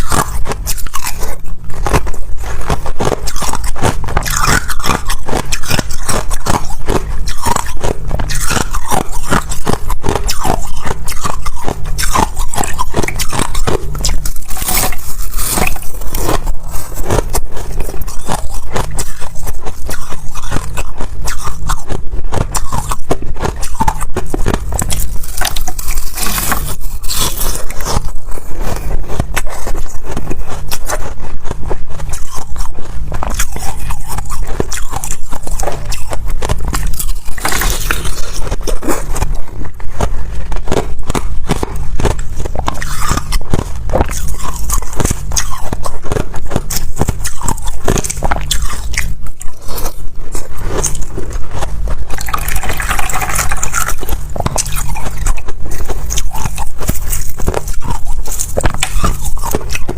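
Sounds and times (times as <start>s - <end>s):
ice crunching between teeth: 0.0s - 59.9s.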